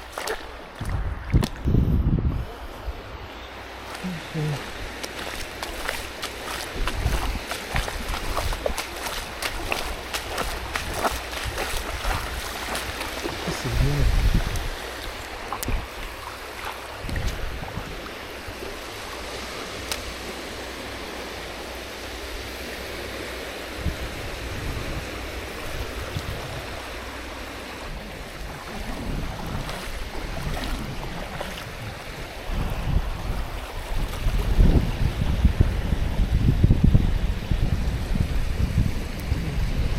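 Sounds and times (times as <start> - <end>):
wind buffeting microphone: 0.0 - 20.3, 23.7 - 39.9
surf washing onto beach: 3.6 - 39.9.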